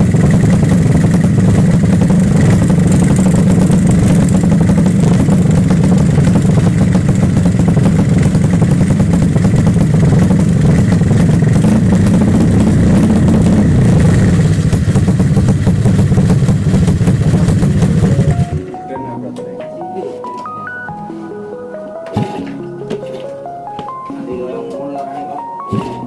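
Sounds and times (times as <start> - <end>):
motorcycle engine running steadily: 0.0 - 18.8.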